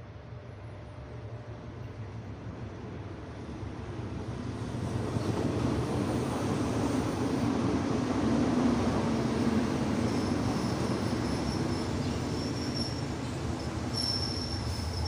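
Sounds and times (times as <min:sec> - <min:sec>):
diesel locomotive engine drone: 0:00.0 - 0:15.0
wheel squeal: 0:10.1 - 0:15.0.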